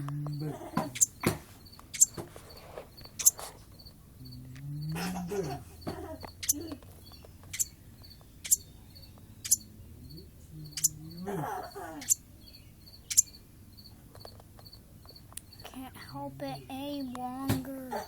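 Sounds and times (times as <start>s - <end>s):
bird chirping: 0.0s - 17.5s
cricket-like chirping: 0.0s - 17.5s.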